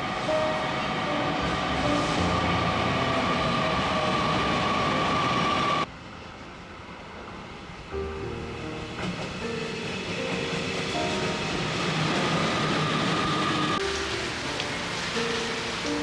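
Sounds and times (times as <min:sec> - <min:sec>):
rail and station noise: 0:00.0 - 0:16.0
train rumble: 0:00.0 - 0:16.0
high squeal: 0:08.2 - 0:13.8.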